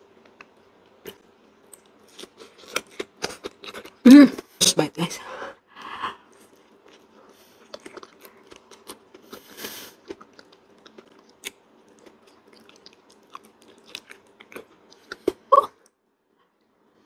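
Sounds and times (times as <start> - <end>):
person chewing wet mouth sounds: 6.2 - 15.5.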